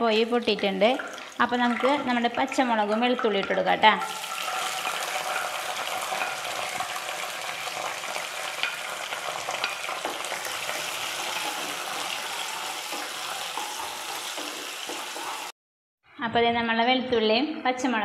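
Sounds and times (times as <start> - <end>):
sizzling in hot oil: 0.0 - 15.6
wooden spatula scraping pan: 4.2 - 15.5.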